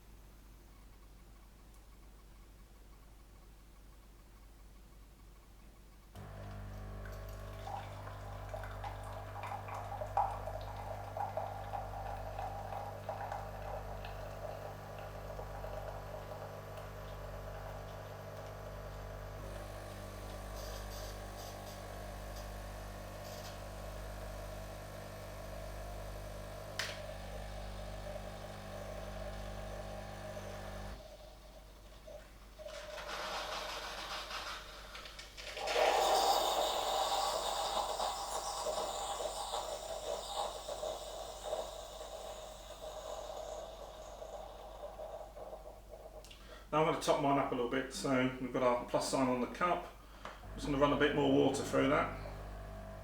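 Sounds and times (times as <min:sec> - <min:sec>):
liquid streaming into glass: 0:06.2 - 0:21.4, 0:35.6 - 0:46.4
pump humming: 0:06.2 - 0:31.2, 0:35.6 - 0:47.2, 0:50.1 - 0:53.0.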